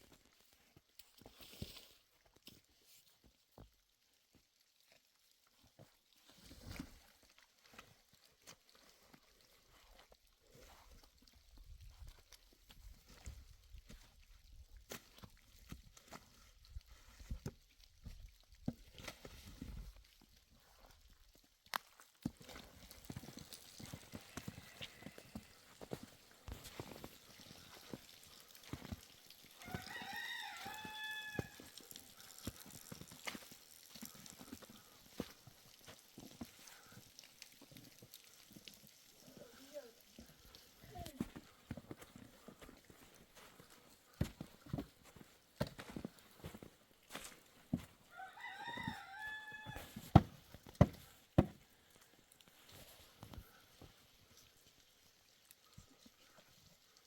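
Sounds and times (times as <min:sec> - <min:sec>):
rooster crowing: 0:29.6 - 0:31.8, 0:48.1 - 0:50.0.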